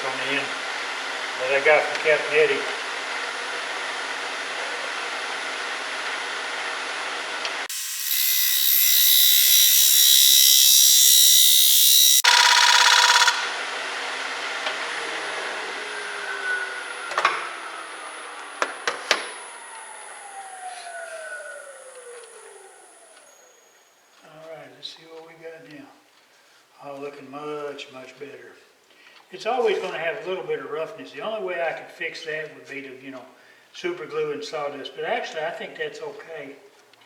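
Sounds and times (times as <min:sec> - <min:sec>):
wood lathe whine: 0:00.0 - 0:24.1
cutter scraping wood: 0:07.7 - 0:13.6.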